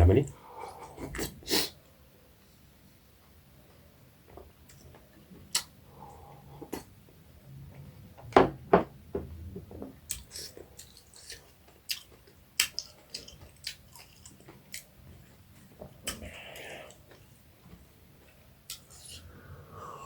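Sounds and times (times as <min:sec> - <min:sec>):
person chewing: 0:10.0 - 0:17.3, 0:18.3 - 0:20.0.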